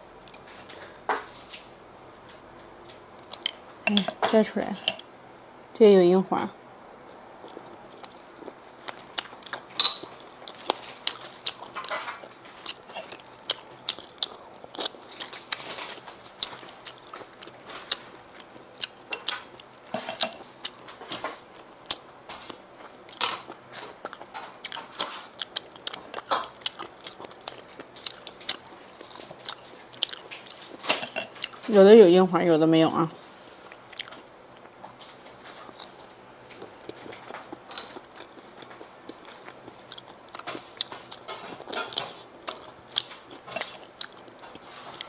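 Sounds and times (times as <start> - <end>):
wet chewing and mouth smacks: 7.1 - 31.7, 33.6 - 34.8, 35.6 - 45.0.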